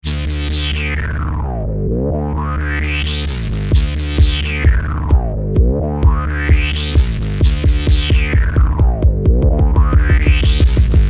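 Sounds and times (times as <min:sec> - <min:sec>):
bass line: 0:00.0 - 0:11.0
synthesizer chord filter sweep: 0:00.0 - 0:11.0
drum machine kicks: 0:03.7 - 0:11.0.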